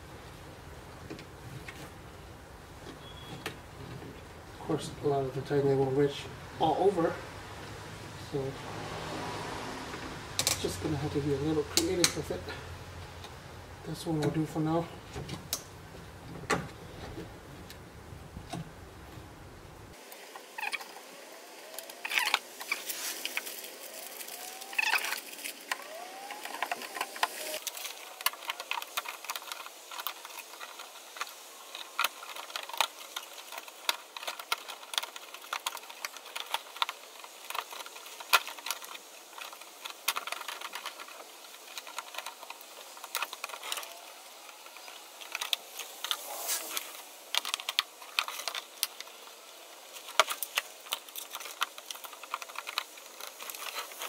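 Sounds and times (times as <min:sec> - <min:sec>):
zip ties clicking and rattling: 0:24.6 - 0:54.0.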